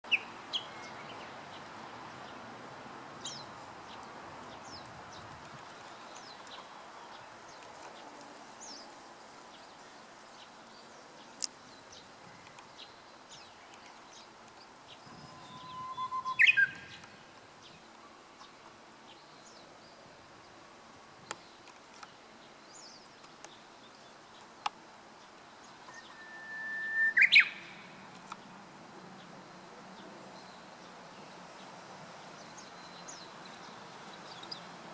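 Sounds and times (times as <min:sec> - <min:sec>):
bush warbler singing: 0:00.1 - 0:02.4, 0:03.2 - 0:20.6, 0:21.2 - 0:34.9
faint short bird chirps: 0:15.1 - 0:17.0.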